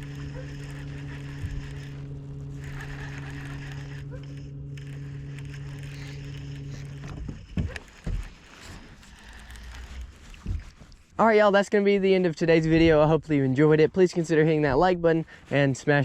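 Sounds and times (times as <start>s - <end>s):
small motor humming: 0.0s - 11.2s.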